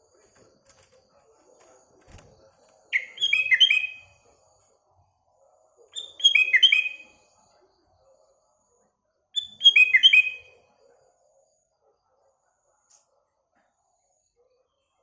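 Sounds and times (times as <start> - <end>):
bulbul singing: 2.9 - 4.1.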